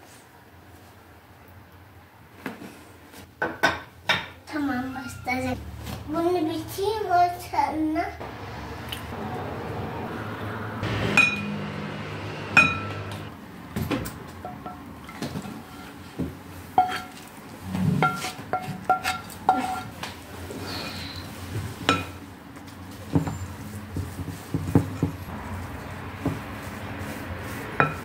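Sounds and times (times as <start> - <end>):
dishes and cutlery clinking: 11.1 - 11.6, 12.6 - 13.3, 14.4 - 17.3, 18.0 - 20.0, 21.8 - 22.2, 27.8 - 28.0.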